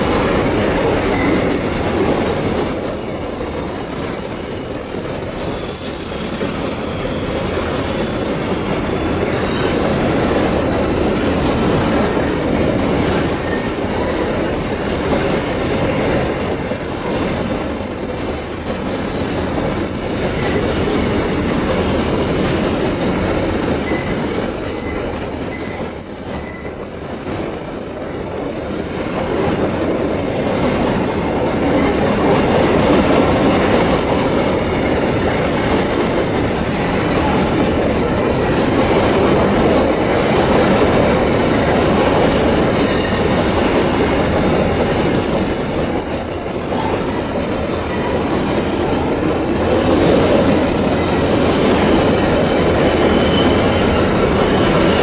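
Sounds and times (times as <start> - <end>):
rumble of wheels on rail: 0.0 - 55.0
faint high wheel squeals: 1.1 - 2.0, 4.3 - 11.0, 15.8 - 16.8, 19.1 - 21.2, 22.4 - 30.8, 34.4 - 38.8, 39.6 - 45.1, 46.2 - 55.0.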